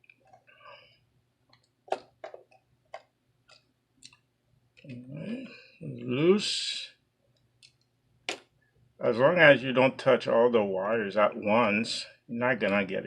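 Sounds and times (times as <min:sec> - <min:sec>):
mumbled voice: 0:04.9 - 0:06.9.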